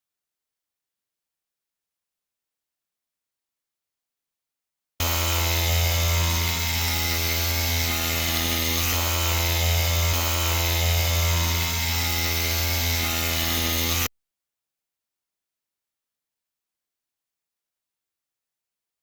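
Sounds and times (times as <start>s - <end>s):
machine tool motor humming: 5.0s - 14.1s.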